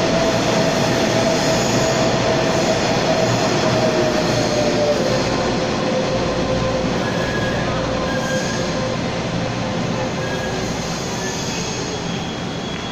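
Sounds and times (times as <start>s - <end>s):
brake squeal: 10.2s - 12.9s.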